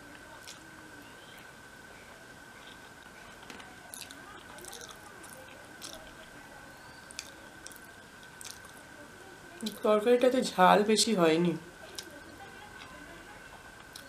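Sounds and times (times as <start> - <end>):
faint high whine: 0.0 - 14.0
soft chewing and lip smacks: 0.4 - 0.6, 1.3 - 8.8, 11.8 - 14.0.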